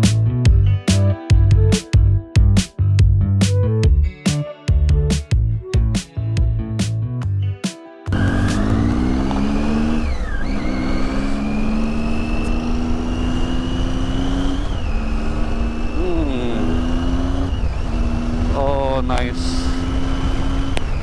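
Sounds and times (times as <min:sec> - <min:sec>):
music: 0:00.0 - 0:09.0
motorcycle engine accelerating: 0:08.1 - 0:21.0.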